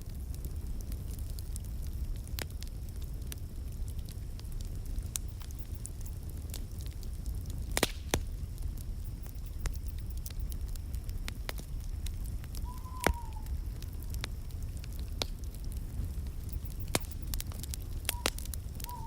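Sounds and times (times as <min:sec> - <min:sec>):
wood fire crackling: 0:00.0 - 0:19.0
faint falling whistle: 0:12.6 - 0:13.5, 0:18.1 - 0:19.0.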